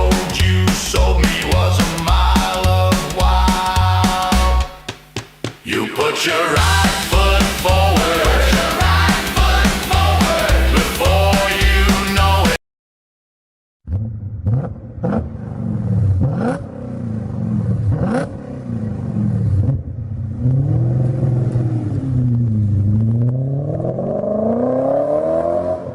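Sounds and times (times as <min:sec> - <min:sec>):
car engine revving: 0:13.9 - 0:25.9.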